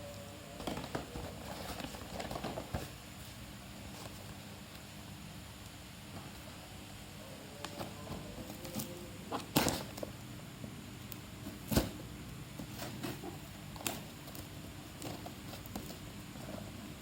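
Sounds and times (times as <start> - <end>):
low steady hum: 0.0 - 17.0
packaging rustling: 0.6 - 3.0.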